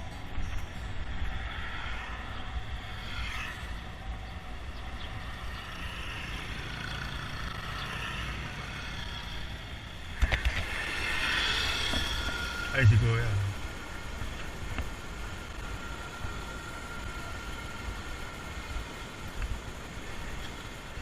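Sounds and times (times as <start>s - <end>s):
road noise: 0.0s - 21.0s
wind rumble on microphone: 10.1s - 21.0s.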